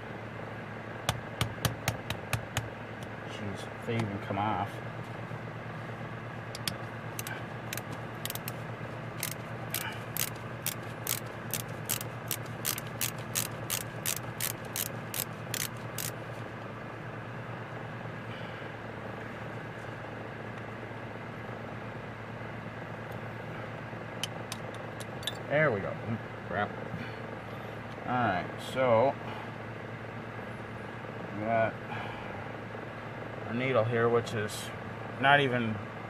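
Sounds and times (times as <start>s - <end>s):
steady low hum: 0.0s - 36.0s
sharp metallic clicks: 6.5s - 8.6s, 9.2s - 16.2s.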